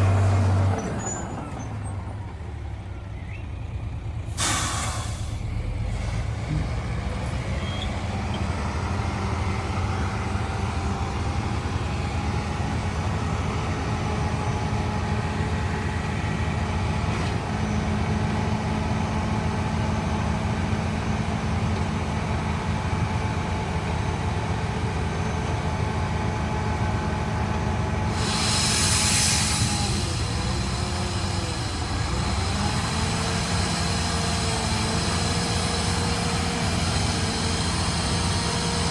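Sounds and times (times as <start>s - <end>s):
diesel construction machine running: 0.0s - 38.9s
burst of hiss: 4.3s - 5.4s, 28.1s - 32.1s.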